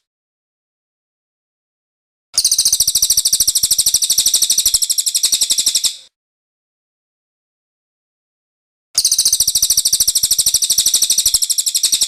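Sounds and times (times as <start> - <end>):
bird trilling song: 2.4 - 6.0, 9.0 - 12.0.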